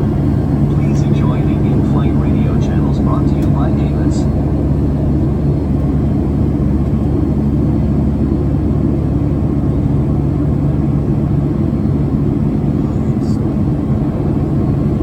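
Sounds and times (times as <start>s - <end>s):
airplane cabin engine drone: 0.0s - 15.0s.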